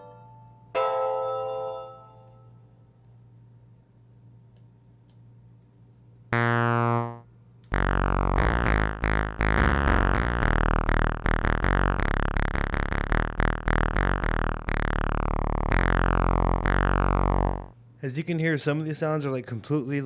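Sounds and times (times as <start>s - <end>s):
faint hum: 0.0s - 20.0s
soft clicks: 4.5s - 5.3s
short decaying synth notes: 6.4s - 17.8s.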